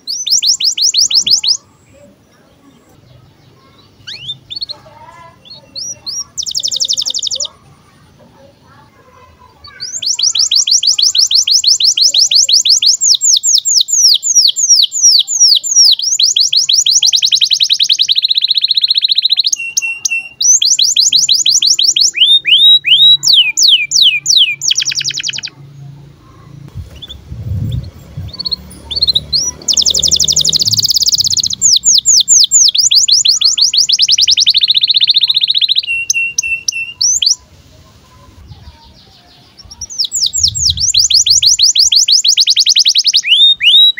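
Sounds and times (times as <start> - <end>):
canary singing trills: 0.0 - 43.9
low rumble: 25.8 - 29.6, 39.7 - 41.0.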